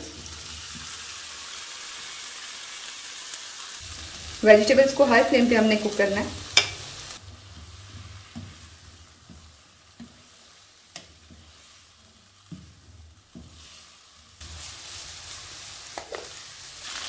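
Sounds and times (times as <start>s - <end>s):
vegetables sizzling in oil: 0.0s - 17.0s
spatula scraping and tapping pan: 6.5s - 6.9s, 7.5s - 14.7s, 15.9s - 16.4s.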